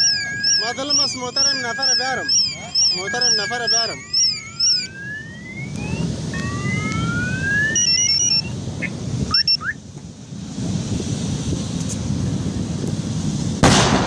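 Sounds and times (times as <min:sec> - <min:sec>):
car alarms sounding: 0:00.0 - 0:09.8.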